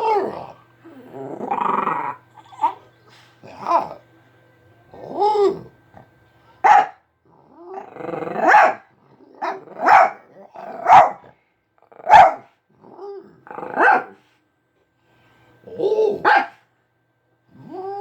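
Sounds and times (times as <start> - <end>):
dog growl-like call: 0.0 - 2.8, 7.3 - 10.9, 12.7 - 13.9, 17.5 - 18.0
dog barking: 6.6 - 7.0, 8.4 - 11.3, 12.0 - 12.5, 13.6 - 14.2, 16.2 - 16.6.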